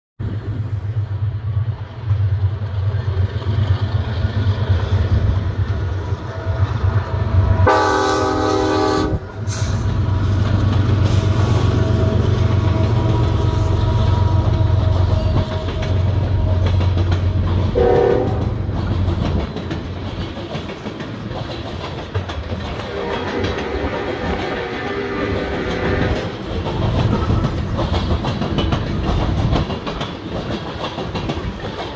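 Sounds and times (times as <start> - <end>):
clickety-clack of rolling cars: 0.2 - 31.9
diesel locomotives rumbling: 0.2 - 31.9
locomotive air horn: 7.6 - 9.8, 17.8 - 18.5, 22.8 - 26.4.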